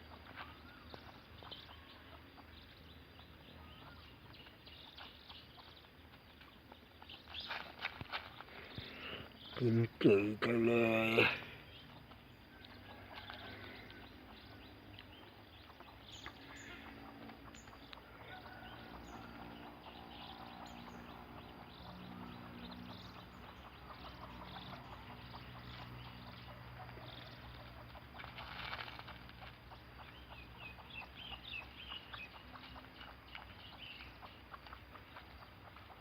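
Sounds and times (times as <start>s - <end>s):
faint bird chirps: 0.0s - 36.0s.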